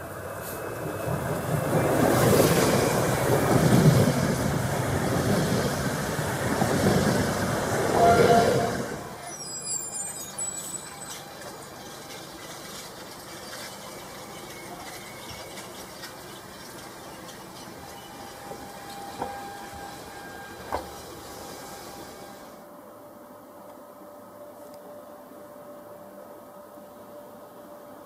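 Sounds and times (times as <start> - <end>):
train rushing past: 0.0 - 22.6
brief high squeals: 7.9 - 12.2.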